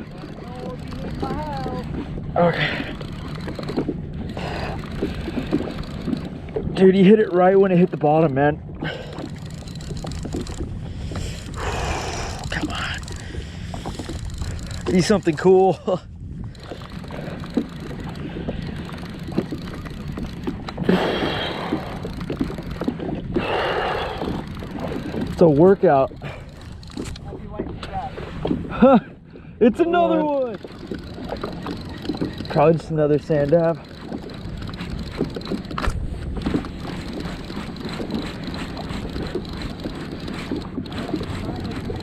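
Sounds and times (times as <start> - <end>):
knocks and splashes: 0.0 - 11.4, 16.6 - 29.5
water lapping against kayak hull: 0.0 - 42.0
wind: 0.0 - 42.0.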